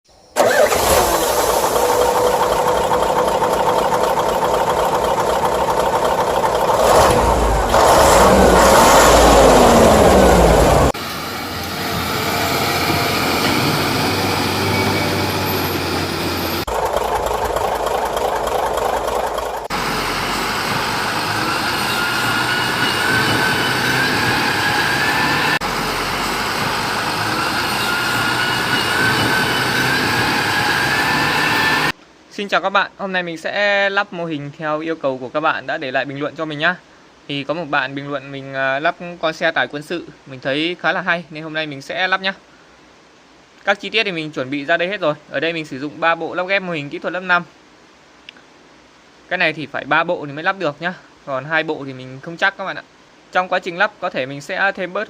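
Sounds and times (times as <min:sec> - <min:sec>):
vehicle engine: 0:00.4 - 0:32.0.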